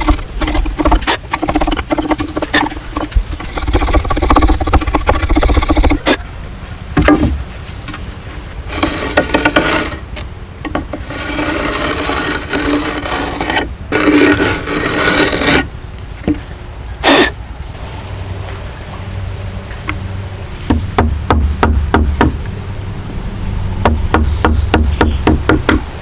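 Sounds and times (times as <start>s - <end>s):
sharp knocks: 0.0s - 6.2s, 20.7s - 22.4s, 23.8s - 25.9s
hand tool scraping wood: 0.0s - 6.3s, 7.0s - 8.1s, 8.7s - 17.4s, 23.8s - 25.9s.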